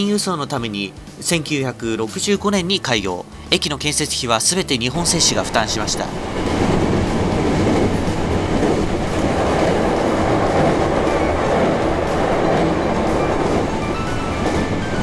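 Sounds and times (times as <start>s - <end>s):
electric train rumbling on rails: 3.9s - 15.0s.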